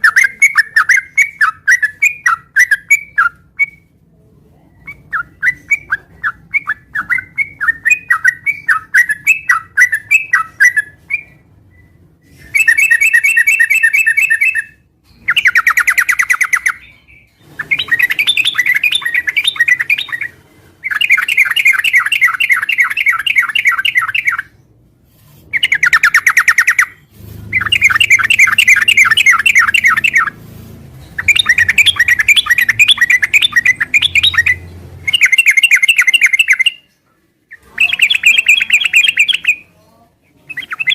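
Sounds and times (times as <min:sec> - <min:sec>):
bird singing: 0:00.0 - 0:03.9, 0:04.8 - 0:24.6, 0:25.5 - 0:30.4, 0:31.1 - 0:36.9, 0:37.5 - 0:39.8, 0:40.4 - 0:40.9
rapid bird chattering: 0:12.4 - 0:24.5, 0:25.5 - 0:30.4, 0:31.2 - 0:36.9, 0:37.5 - 0:39.7, 0:40.5 - 0:40.9.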